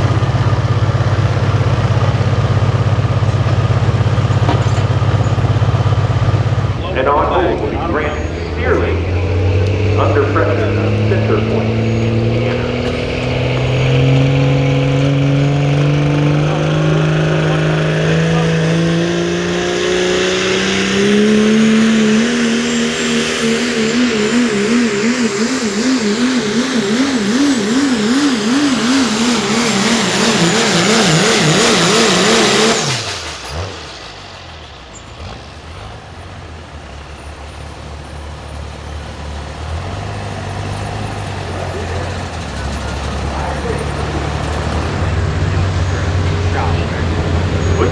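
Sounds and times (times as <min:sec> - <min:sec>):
high whine: 0:00.0 - 0:35.7
diesel truck engine at full throttle: 0:00.0 - 0:47.9.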